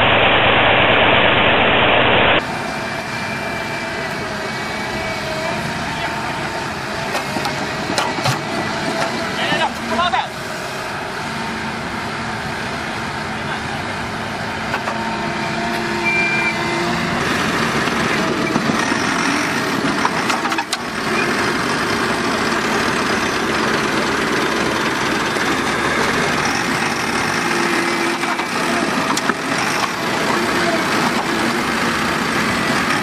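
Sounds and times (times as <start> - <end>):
heavy vehicle engine running: 0.0 - 33.0.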